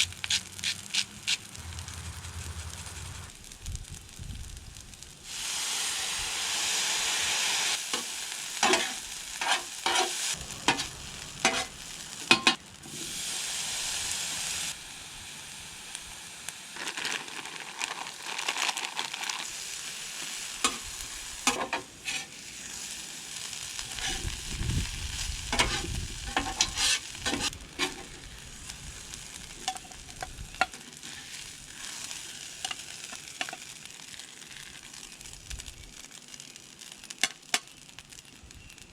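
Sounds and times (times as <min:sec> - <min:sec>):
food sizzling in hot oil: 0:00.0 - 0:38.9
metal spatula scraping griddle: 0:08.6 - 0:12.6, 0:21.4 - 0:22.5, 0:23.8 - 0:24.4, 0:25.5 - 0:28.3.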